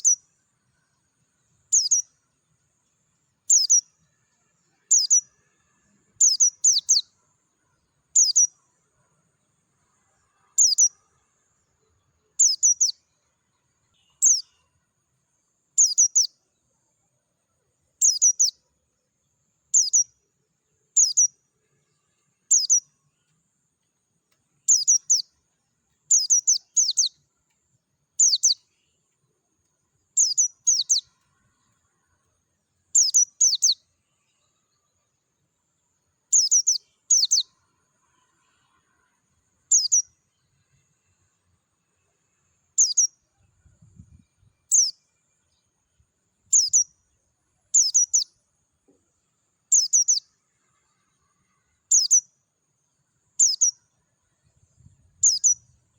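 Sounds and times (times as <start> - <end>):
bird high chirps: 0.0 - 0.3, 1.6 - 2.2, 3.4 - 5.4, 6.1 - 7.2, 8.1 - 8.6, 10.4 - 11.1, 12.2 - 14.8, 15.7 - 16.4, 18.0 - 18.6, 19.7 - 20.2, 20.9 - 21.4, 22.4 - 23.0, 24.6 - 25.4, 26.0 - 27.2, 28.2 - 29.1, 30.1 - 31.8, 32.9 - 35.2, 36.3 - 37.6, 39.7 - 40.2, 42.8 - 45.7, 46.4 - 48.4, 49.7 - 50.4, 51.8 - 52.3, 53.4 - 53.9, 54.8 - 55.9.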